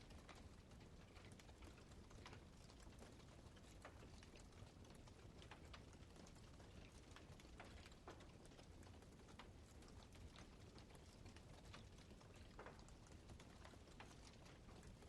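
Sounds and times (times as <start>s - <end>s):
low steady hiss: 0.0s - 15.0s
wood fire crackling: 0.0s - 15.0s.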